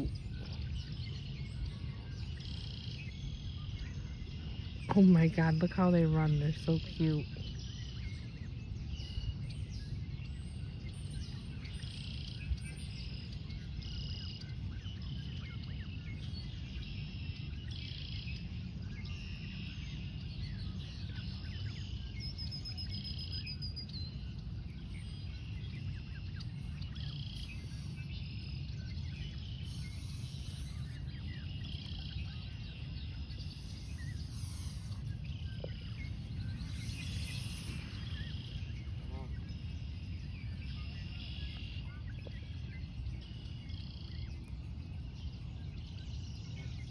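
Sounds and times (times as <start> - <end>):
small birds chirping: 0.0 - 46.9
steady low rumble: 19.6 - 46.9.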